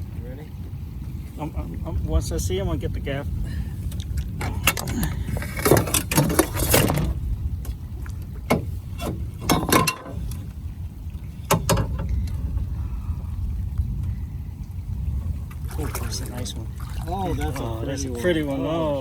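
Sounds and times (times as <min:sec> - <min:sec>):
low rumble: 0:00.0 - 0:19.0
gear knocking in metal boat: 0:08.4 - 0:10.2.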